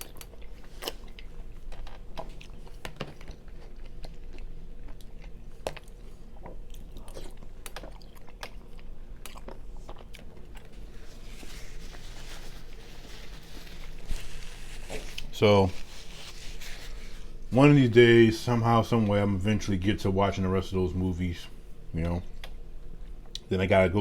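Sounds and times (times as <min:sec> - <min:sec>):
person chewing food: 0:00.0 - 0:17.4.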